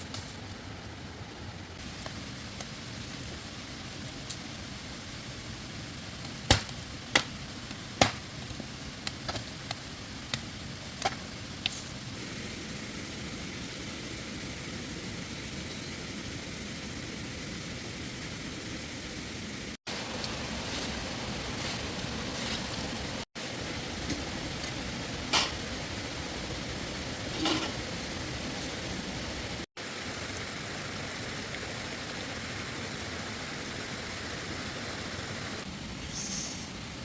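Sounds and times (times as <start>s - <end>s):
background hiss: 18.6s - 37.0s.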